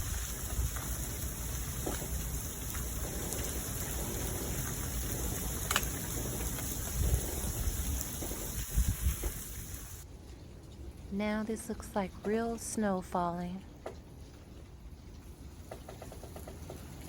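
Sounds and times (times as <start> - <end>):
wind rumbling on microphone: 0.0 - 11.0
hiss of freezing precipitation: 0.0 - 13.2, 14.2 - 17.0.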